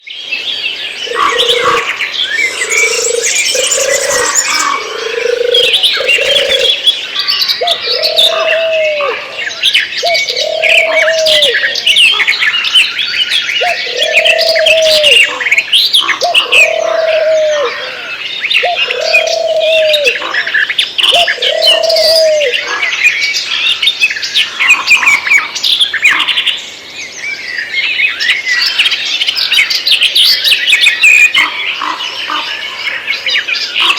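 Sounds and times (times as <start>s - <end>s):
birds chirping and twittering: 0.0s - 33.9s
low repeating bird call: 1.0s - 23.1s.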